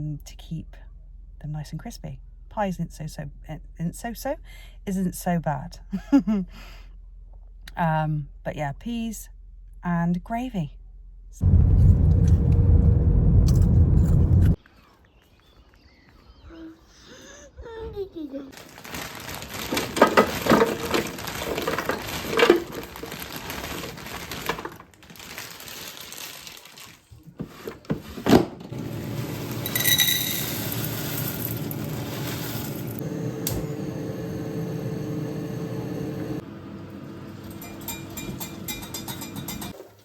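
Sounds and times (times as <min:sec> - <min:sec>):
appliance humming: 0:19.1 - 0:24.8, 0:27.9 - 0:39.8
dishes and utensils clattering: 0:19.8 - 0:23.0, 0:28.8 - 0:32.9, 0:37.4 - 0:40.0
appliance beep: 0:28.8 - 0:39.4.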